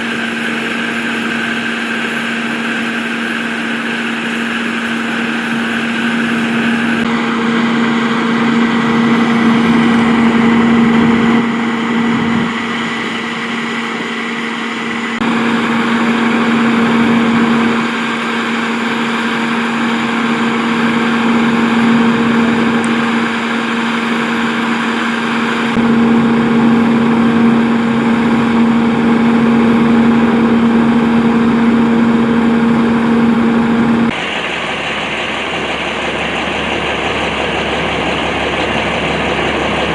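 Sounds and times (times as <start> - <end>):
traffic noise: 0.0 - 26.2, 34.1 - 39.9
large vehicle engine idling: 0.0 - 39.9.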